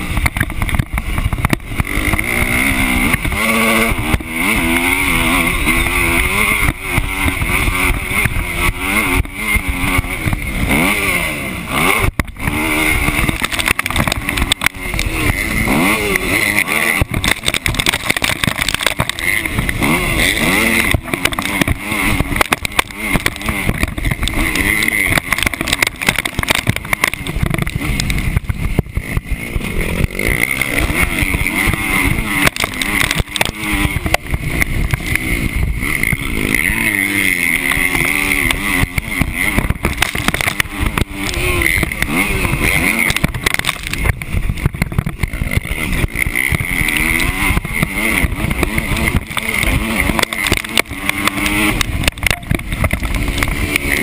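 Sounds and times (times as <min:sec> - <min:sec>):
motocross bike engine revving: 0:00.0 - 0:54.0
wind buffeting microphone: 0:38.0 - 0:50.2.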